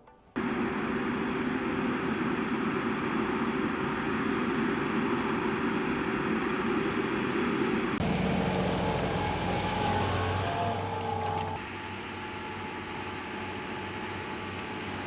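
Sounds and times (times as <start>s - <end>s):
tractor engine running: 8.0s - 11.6s.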